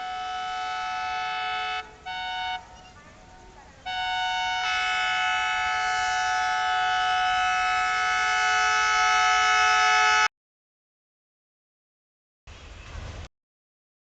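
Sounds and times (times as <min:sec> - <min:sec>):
locomotive air horn blast: 0:00.0 - 0:02.8, 0:03.8 - 0:10.3.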